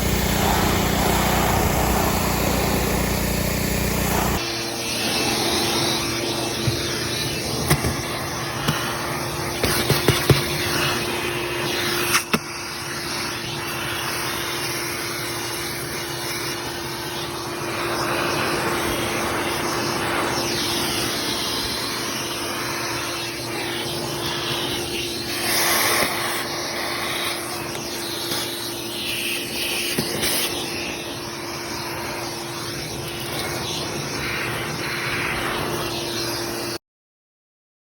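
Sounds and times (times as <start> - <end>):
water spray hissing on car: 0.0 - 4.4
pressure washer hum: 0.0 - 11.9.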